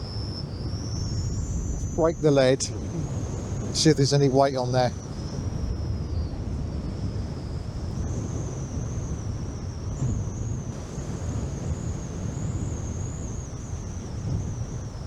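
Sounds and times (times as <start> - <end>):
thin high whistle: 0.0 - 15.0
wind buffeting microphone: 0.0 - 15.0.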